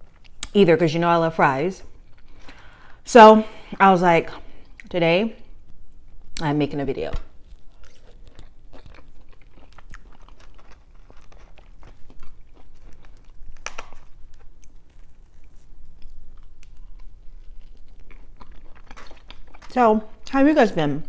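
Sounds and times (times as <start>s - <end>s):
person chewing crispy food: 1.9s - 3.0s, 7.2s - 20.3s.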